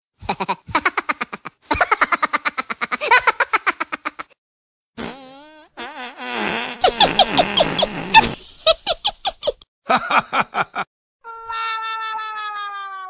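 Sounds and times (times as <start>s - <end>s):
comic fart sound effect: 5.0s - 8.4s.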